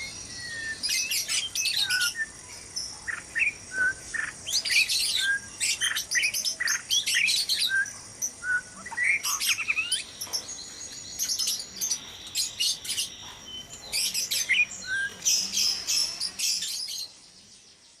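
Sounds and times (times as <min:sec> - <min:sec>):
birds whistling and trilling: 0:00.0 - 0:18.0.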